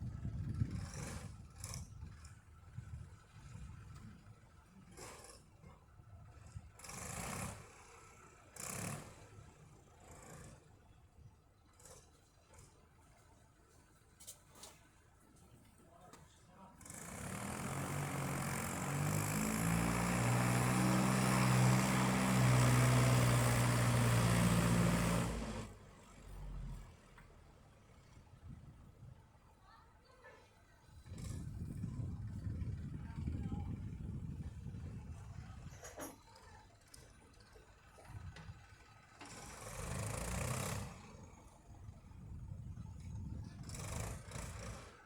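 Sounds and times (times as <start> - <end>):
tractor engine rumbling: 16.2 - 29.4, 30.9 - 39.3
tractor engine running hard: 16.9 - 25.8.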